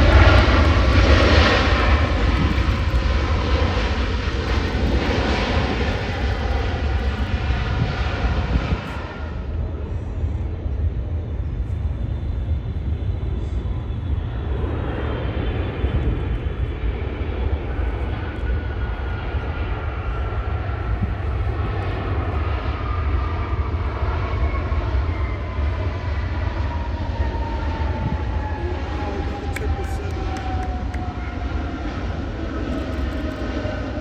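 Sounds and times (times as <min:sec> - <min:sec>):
jet engine whine: 0:00.0 - 0:34.0
jet engines rumbling: 0:00.0 - 0:34.0.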